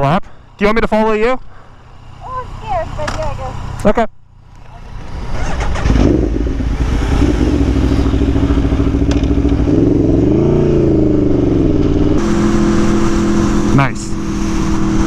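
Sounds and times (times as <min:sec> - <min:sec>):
motorcycle engine revving: 0:04.6 - 0:15.0.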